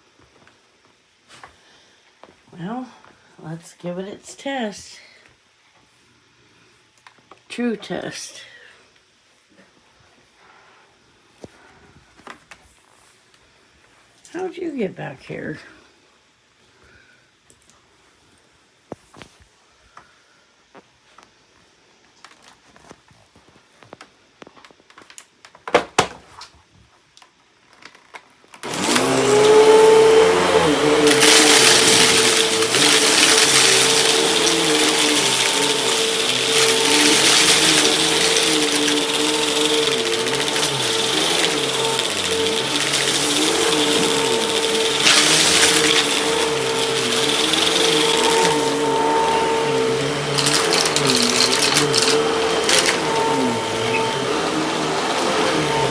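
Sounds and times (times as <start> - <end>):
debris rattling up a hose: 28.6 - 55.9
vacuum cleaner running: 28.6 - 55.9.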